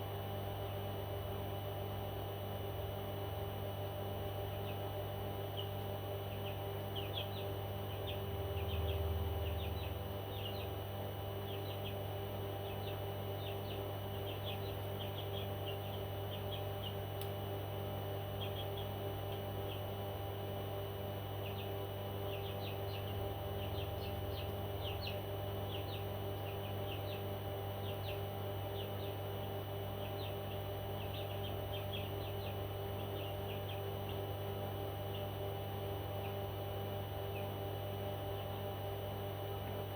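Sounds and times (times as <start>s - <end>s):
steady electrical hum: 0.0s - 39.9s.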